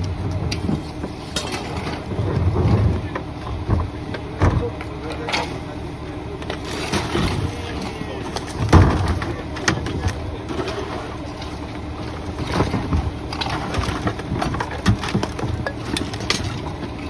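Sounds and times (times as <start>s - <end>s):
diesel truck engine running: 0.0s - 17.0s
debris thudding and clattering: 8.4s - 10.8s.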